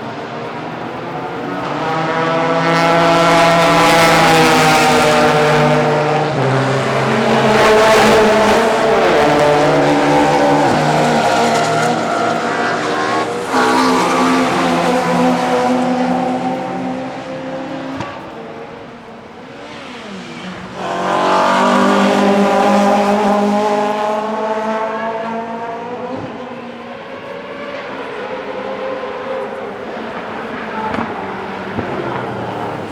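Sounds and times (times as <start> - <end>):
race car engines passing: 0.0 - 32.9.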